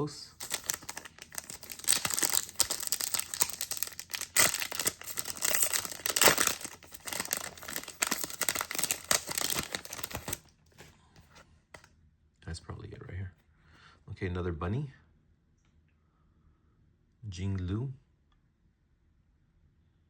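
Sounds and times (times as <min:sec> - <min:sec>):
card pack wrapper crinkling: 0:00.3 - 0:10.5.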